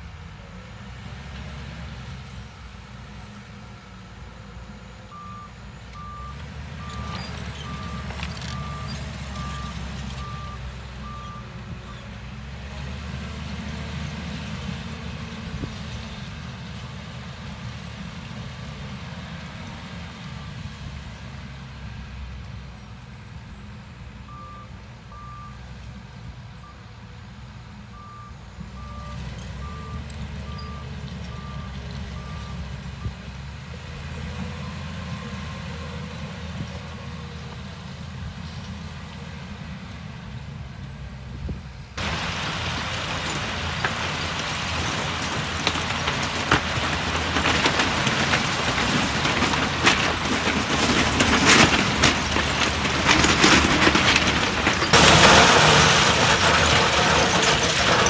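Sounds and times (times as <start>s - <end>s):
diesel machinery rumbling: 0.0s - 58.0s
clattering clicks: 42.0s - 58.0s.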